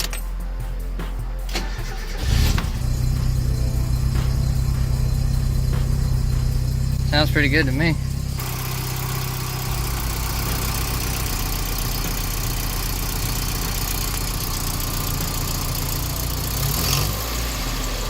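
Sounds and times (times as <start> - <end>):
car engine idling: 1.4 - 18.0.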